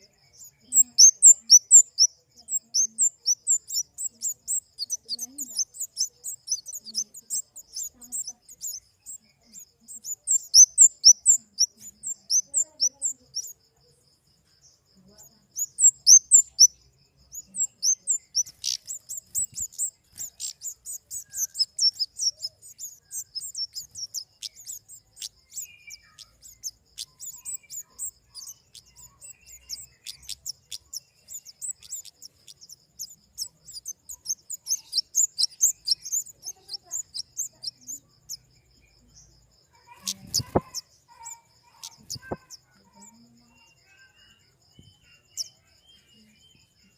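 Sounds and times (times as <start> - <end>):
faint steady high tone: 0.0 - 46.9
bird high short chirps: 39.8 - 43.2.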